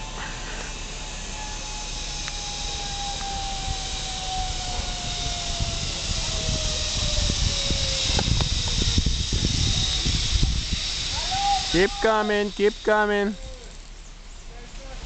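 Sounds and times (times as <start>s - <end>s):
zip-line trolley whine: 0.0s - 13.9s
wind buffeting microphone: 2.4s - 12.8s.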